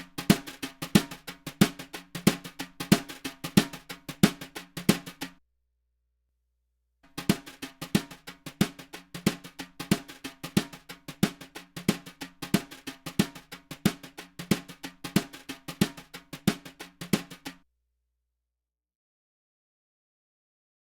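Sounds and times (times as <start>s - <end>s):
drum kit playing a beat: 0.0s - 5.4s, 7.2s - 17.6s.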